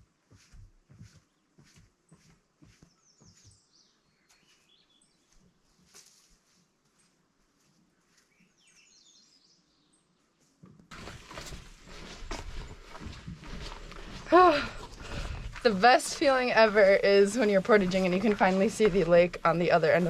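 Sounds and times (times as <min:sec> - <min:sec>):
songbird chirping: 0:01.0 - 0:10.6
rustling and knocking near microphone: 0:10.6 - 0:20.0.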